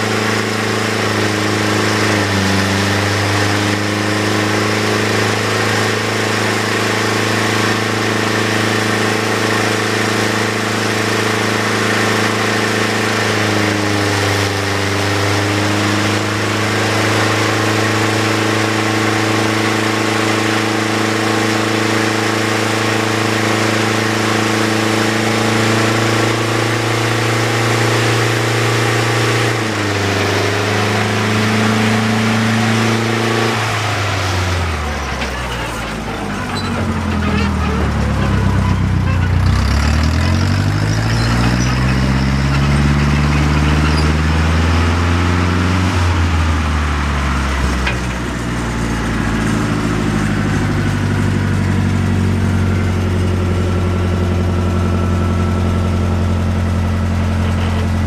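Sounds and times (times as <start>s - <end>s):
engine idling and winding down: 0.0s - 58.0s.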